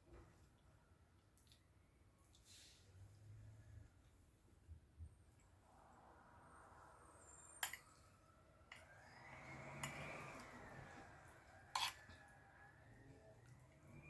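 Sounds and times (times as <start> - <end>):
faint rising and falling tone: 5.4 - 14.0
dishes and utensils clinking: 9.7 - 11.0, 11.7 - 12.3.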